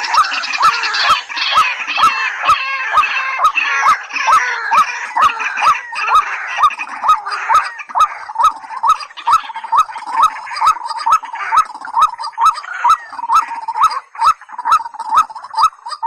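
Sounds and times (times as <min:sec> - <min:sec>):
chatter of higher bird calls: 0:00.0 - 0:16.0
waterhen hooked calls: 0:00.0 - 0:16.0.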